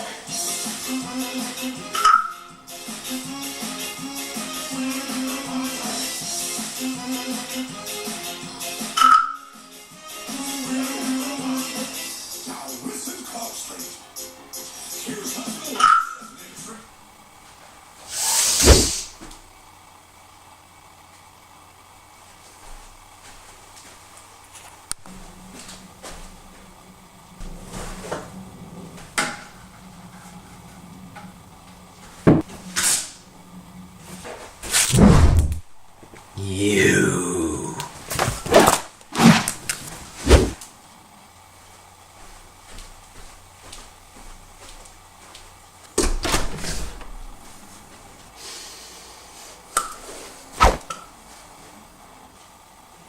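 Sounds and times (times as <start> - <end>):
faint low hum: 22.5 - 38.1.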